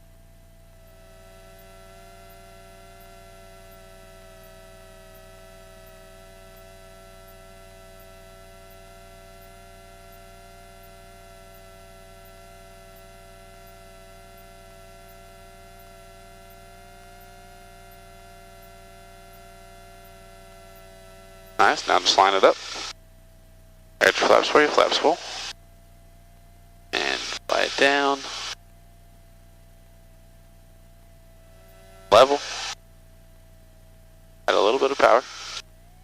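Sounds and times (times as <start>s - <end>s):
steady electrical hum: 18.6s - 35.7s.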